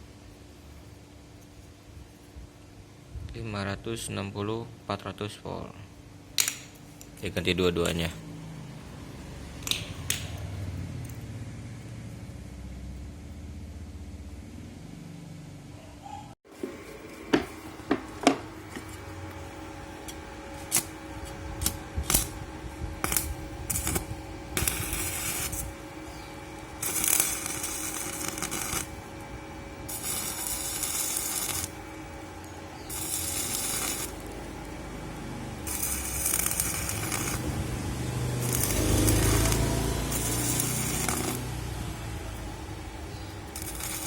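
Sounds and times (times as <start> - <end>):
welder machine hum: 16.5 - 44.0
welding arc crackling: 19.2 - 44.0.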